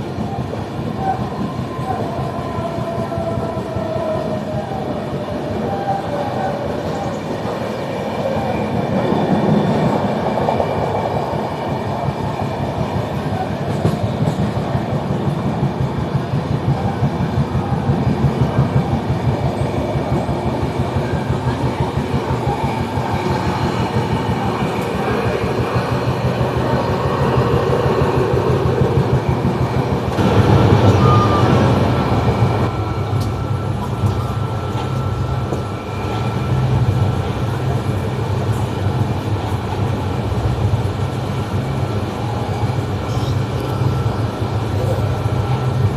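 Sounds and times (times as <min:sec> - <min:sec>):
train wheels clattering on rails: 0:06.8 - 0:45.9
steady high tone: 0:18.6 - 0:45.9.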